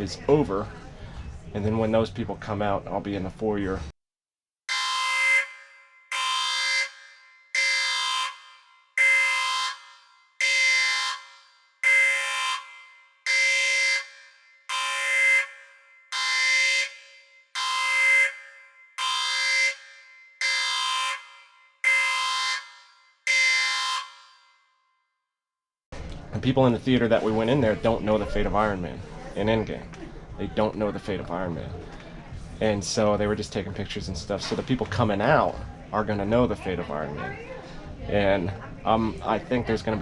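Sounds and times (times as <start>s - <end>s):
electronic alarm tone: 4.7s - 24.5s.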